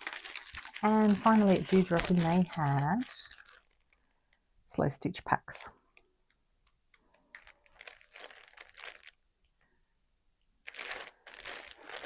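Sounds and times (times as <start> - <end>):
packaging crinkling and rustling: 0.0 - 4.4, 6.9 - 9.2, 10.6 - 12.0.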